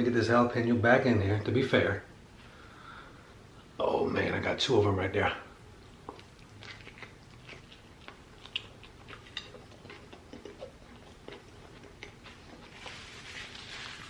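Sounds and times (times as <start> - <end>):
man chewing food: 5.6 - 14.0.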